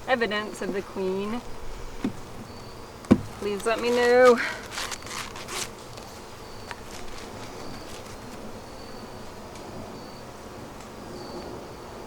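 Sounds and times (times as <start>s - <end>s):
honeybees buzzing: 0.0s - 10.4s.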